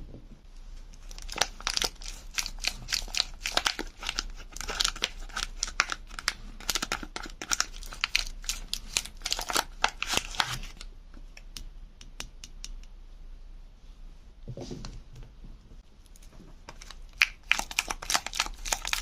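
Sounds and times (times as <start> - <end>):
soap wrapping crinkling and tearing: 0.9 - 10.9, 16.7 - 19.0.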